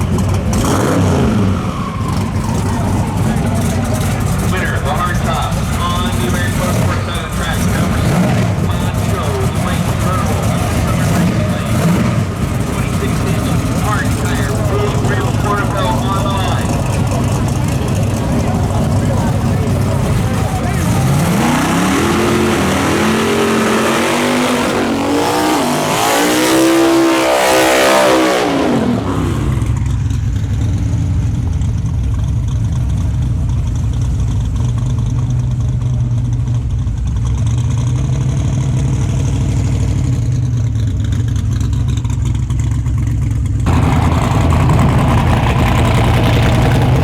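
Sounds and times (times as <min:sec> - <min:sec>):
crowd noise: 0:00.0 - 0:30.0, 0:43.7 - 0:47.0
car engine revving and idling: 0:00.0 - 0:47.0.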